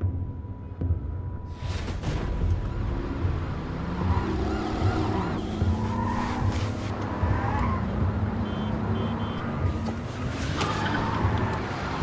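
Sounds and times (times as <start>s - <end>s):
car engine revving: 3.0s - 12.0s.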